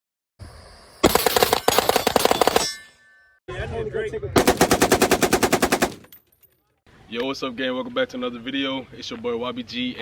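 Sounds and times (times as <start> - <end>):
automatic gunfire: 4.4 - 6.2.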